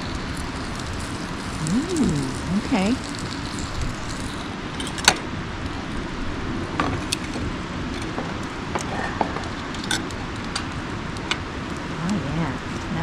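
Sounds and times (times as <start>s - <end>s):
sharp fire pops: 0.0s - 6.1s
campfire crackling: 0.0s - 13.0s.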